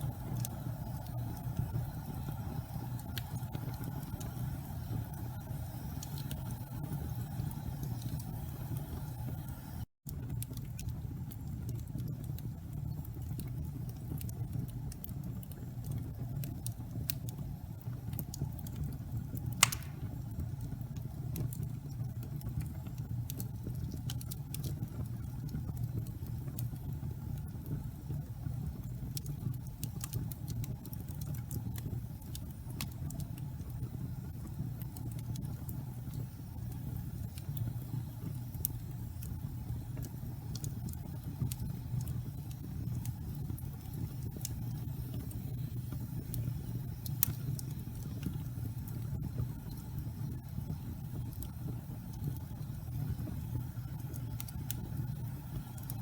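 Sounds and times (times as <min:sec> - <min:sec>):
fire crackling: 0:00.0 - 0:56.0
low rumble of flames: 0:00.0 - 0:56.0
loud pop of fire: 0:19.6 - 0:20.4.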